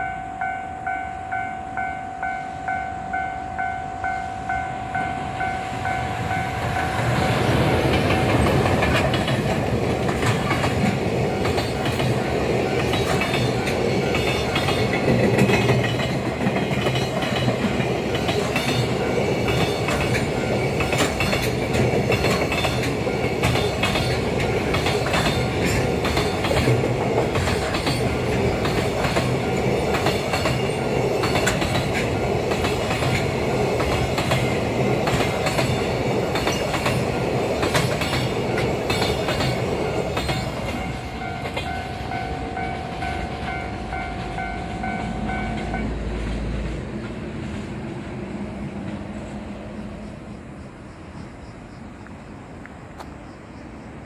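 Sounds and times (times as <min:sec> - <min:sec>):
level-crossing warning bell: 0:00.0 - 0:09.2, 0:09.8 - 0:46.0
train rumble: 0:00.0 - 0:54.0
wheels clattering over rail joints: 0:06.2 - 0:48.2.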